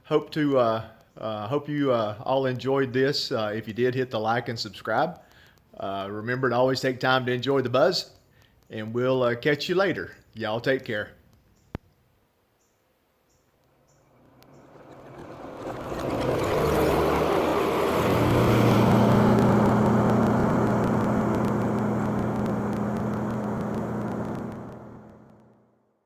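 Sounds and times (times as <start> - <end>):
vehicle engine humming: 13.6 - 25.6.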